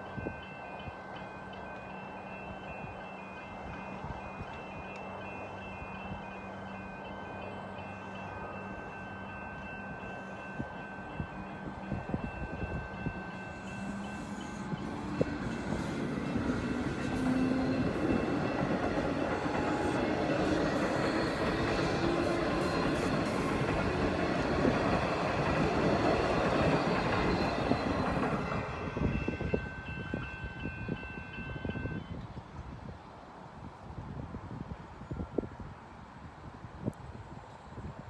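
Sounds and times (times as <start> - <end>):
crossing warning bells ringing: 0.0 - 32.2
train wheels clattering over rails: 13.8 - 28.9.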